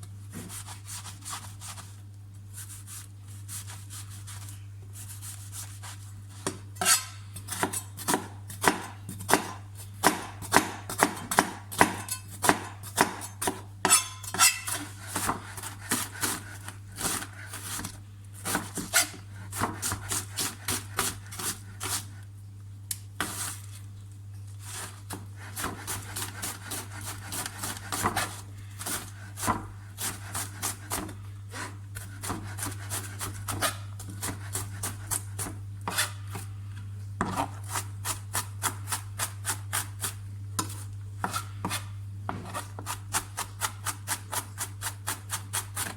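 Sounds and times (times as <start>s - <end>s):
knife chopping on cutting board: 6.4s - 22.1s, 24.8s - 36.5s, 37.2s - 45.9s.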